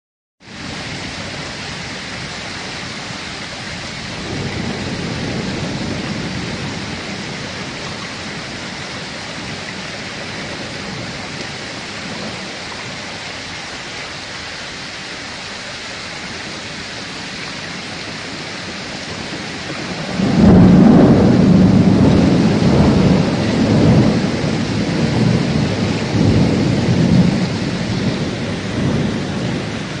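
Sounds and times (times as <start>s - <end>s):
heavy rain falling: 0.4s - 30.0s
rolling thunder: 4.0s - 12.6s, 17.7s - 30.0s.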